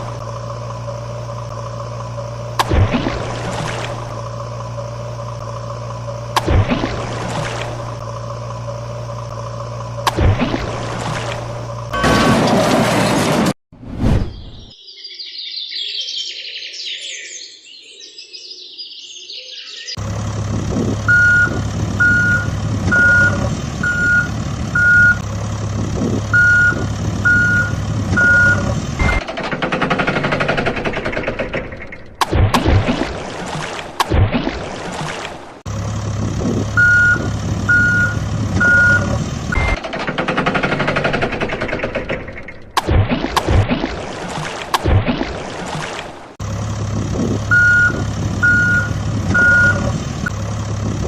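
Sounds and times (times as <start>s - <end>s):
engine hum: 0.0s - 13.6s, 19.9s - 51.0s
bird chirping: 14.2s - 20.0s
truck reversing alarm beeping: 21.0s - 25.3s, 26.2s - 29.3s, 36.7s - 39.8s, 47.4s - 50.4s.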